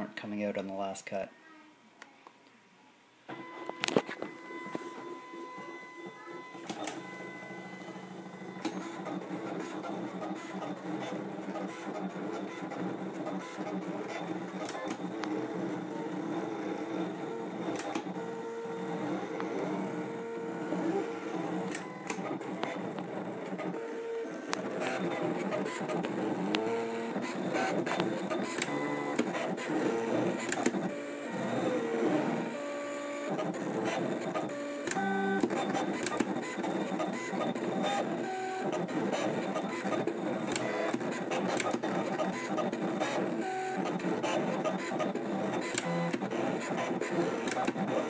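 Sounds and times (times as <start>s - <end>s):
stepper motors whirring: 5.5s - 48.0s
machine clicks: 24.5s - 31.0s, 34.3s - 48.0s.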